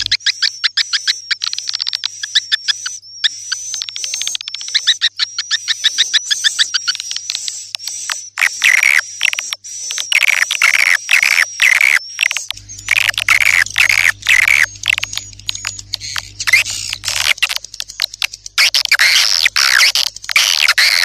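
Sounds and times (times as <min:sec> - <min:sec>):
swiftlets twittering: 0:10.0 - 0:21.0
low steady hum: 0:12.5 - 0:21.0.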